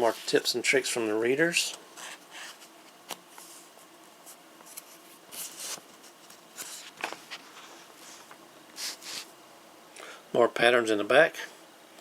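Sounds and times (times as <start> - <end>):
magazine pages rustling: 4.6 - 9.3.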